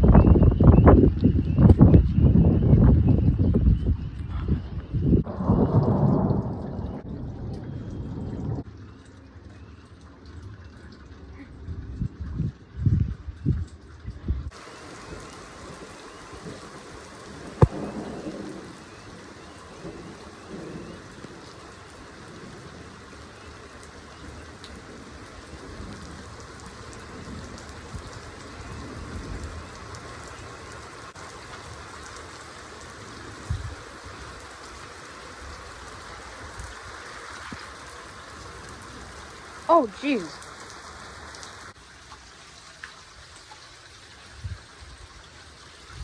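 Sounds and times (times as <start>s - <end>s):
low thunder rumbles: 0.0s - 8.8s, 14.3s - 37.0s
thunder crack and rumbling: 4.4s - 8.7s, 14.5s - 30.2s
steady rain falling: 5.2s - 12.5s, 14.5s - 46.0s.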